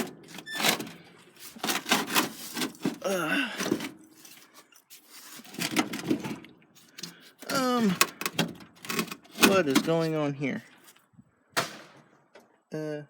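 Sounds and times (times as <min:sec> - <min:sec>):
car battery clunks and clicks: 0:08.1 - 0:09.8.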